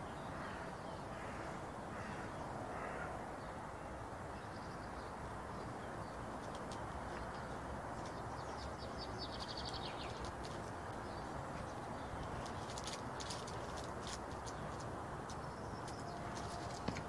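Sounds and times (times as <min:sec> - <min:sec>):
small bird chirping: 0:06.0 - 0:17.0.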